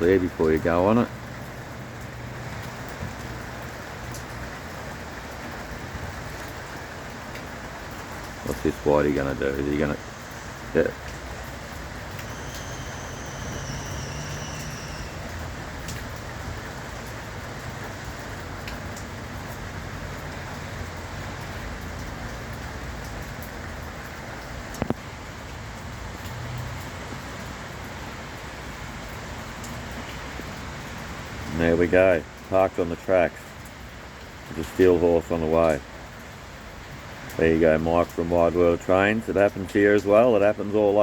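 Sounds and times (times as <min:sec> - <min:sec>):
rain: 0:00.0 - 0:41.0
road traffic rumble: 0:00.0 - 0:41.0
faint high squeal: 0:12.1 - 0:15.5.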